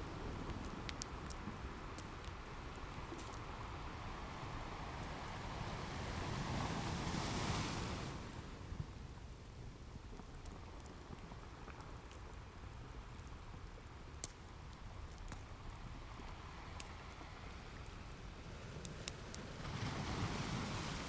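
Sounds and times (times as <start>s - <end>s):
wood fire crackling: 0.0s - 5.6s, 7.2s - 21.0s
ocean waves washing in: 19.6s - 21.0s.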